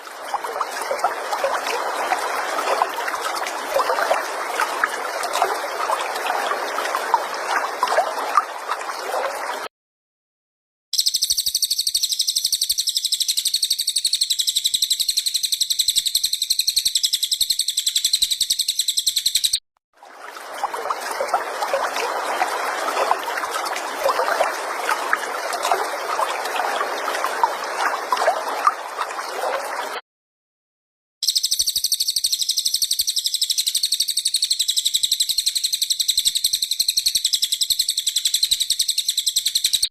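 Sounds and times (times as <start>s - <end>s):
high-pitched songbird trill: 11.0s - 19.6s, 31.2s - 39.9s.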